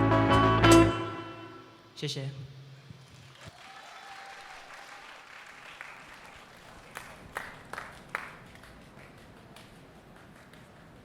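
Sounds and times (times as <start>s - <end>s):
audience applause: 3.2s - 11.0s.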